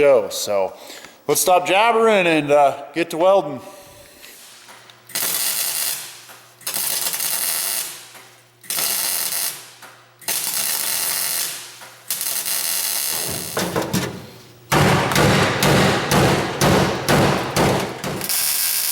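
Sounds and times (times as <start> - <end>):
welder crackling hiss: 10.3 - 13.6, 18.2 - 18.9.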